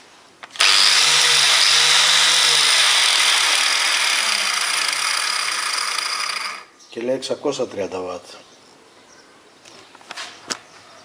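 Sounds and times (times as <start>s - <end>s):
angle grinder running: 0.5s - 6.7s.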